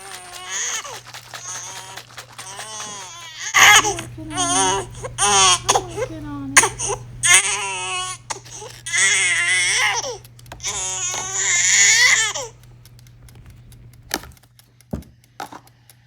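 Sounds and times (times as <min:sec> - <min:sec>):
newborn baby crying: 0:00.0 - 0:12.6
small clicks: 0:00.0 - 0:16.0.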